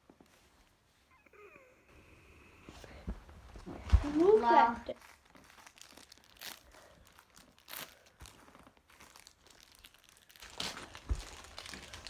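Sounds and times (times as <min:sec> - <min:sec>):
packaging crinkling and tearing: 0:04.0 - 0:12.0.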